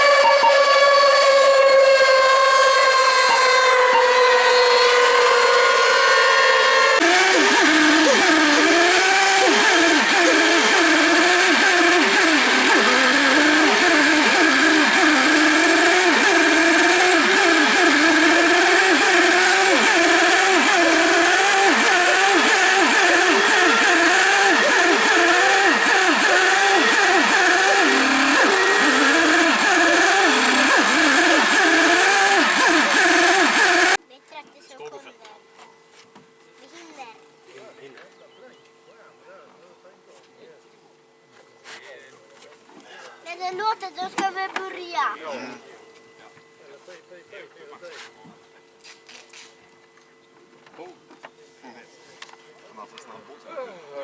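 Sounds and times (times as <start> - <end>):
rc boat engines revving: 0.0 - 34.0.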